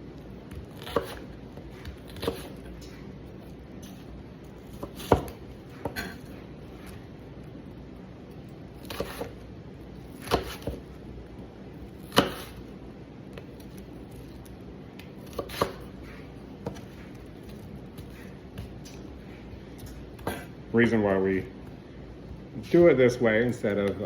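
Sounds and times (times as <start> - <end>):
knife chopping on cutting board: 0.5 - 2.7, 4.7 - 6.3, 8.8 - 9.4, 10.1 - 10.9, 12.0 - 12.6, 15.0 - 18.9.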